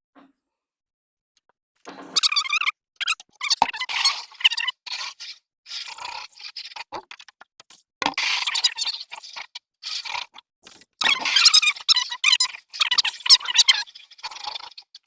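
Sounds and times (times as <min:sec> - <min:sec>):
scrubbing inside a water bucket: 0:03.2 - 0:15.0.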